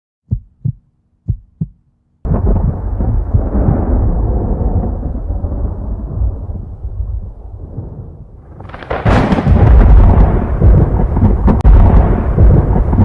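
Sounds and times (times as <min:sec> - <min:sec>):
low heartbeat-like thumps: 0:00.2 - 0:06.4, 0:09.1 - 0:13.0
loud rumbling boom: 0:02.3 - 0:13.0.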